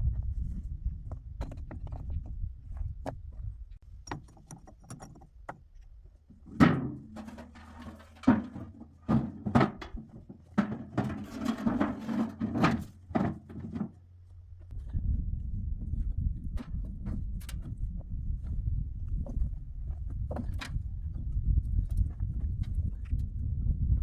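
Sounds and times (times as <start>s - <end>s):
knocks and thuds: 8.2s - 14.0s.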